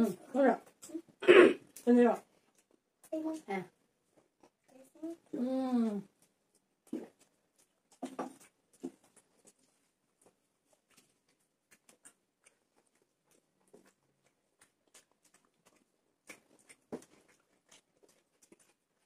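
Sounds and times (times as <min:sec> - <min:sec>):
people chewing and mouth clicks: 0:00.0 - 0:19.0.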